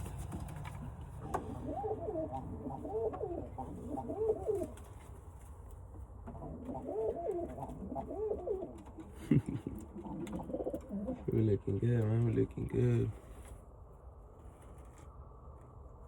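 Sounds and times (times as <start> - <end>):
pigeons cooing: 0.0 - 5.2, 6.2 - 12.4.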